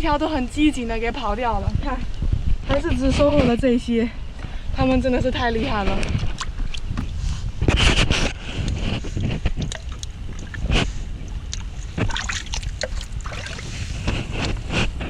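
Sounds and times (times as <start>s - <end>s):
wind buffeting microphone: 0.0s - 15.0s
footsteps wading through water: 6.3s - 7.6s, 8.8s - 15.0s.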